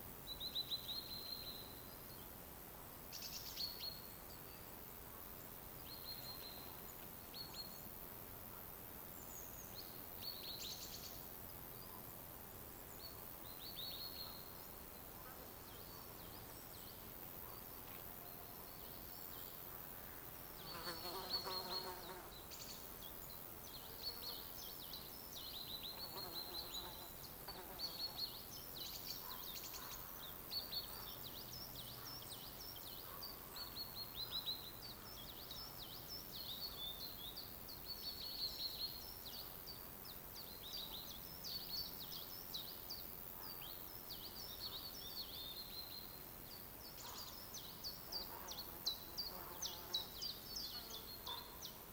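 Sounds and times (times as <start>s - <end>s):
faint steady hiss: 0.0s - 51.9s
birds chirping and trilling: 20.6s - 51.9s.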